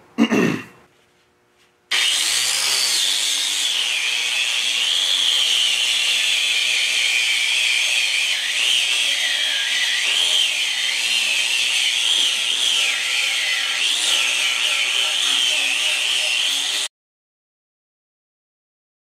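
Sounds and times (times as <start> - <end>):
power tool motor whine: 1.9 - 16.9.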